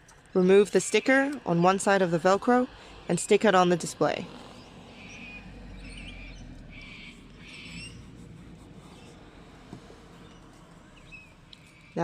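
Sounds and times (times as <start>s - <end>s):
low background rumble: 0.0s - 12.0s
faint bird chirps: 4.5s - 8.0s, 10.2s - 12.0s.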